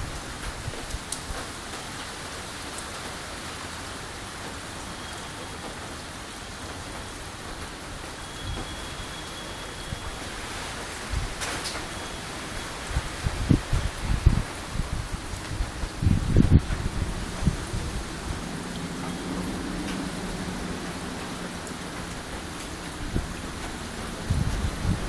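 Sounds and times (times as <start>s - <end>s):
steady rain hiss: 0.0s - 25.0s
faint raindrop ticks: 0.4s - 3.2s, 11.4s - 12.0s, 18.7s - 24.8s.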